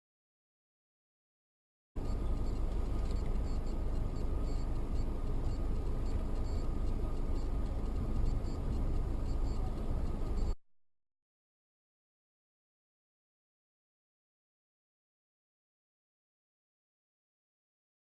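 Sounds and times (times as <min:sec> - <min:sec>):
car road and engine rumble: 0:02.0 - 0:10.6.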